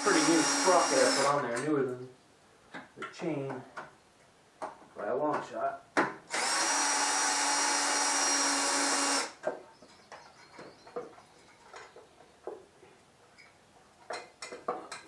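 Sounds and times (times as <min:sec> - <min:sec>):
power drill running: 0:00.0 - 0:01.4, 0:06.3 - 0:09.4.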